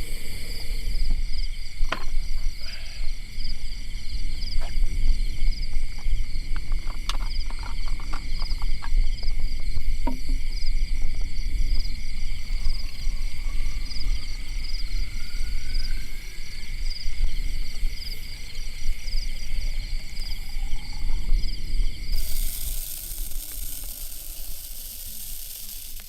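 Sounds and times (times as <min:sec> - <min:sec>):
high hiss: 0:00.0 - 0:05.0, 0:22.0 - 0:26.0
insects trilling: 0:00.0 - 0:26.0.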